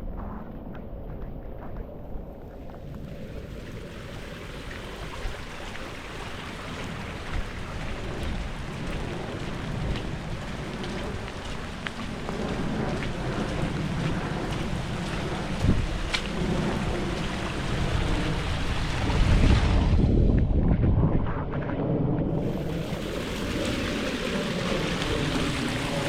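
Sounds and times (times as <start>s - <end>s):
low rumble: 0.0s - 26.0s
rain falling: 2.6s - 19.4s, 22.4s - 26.0s.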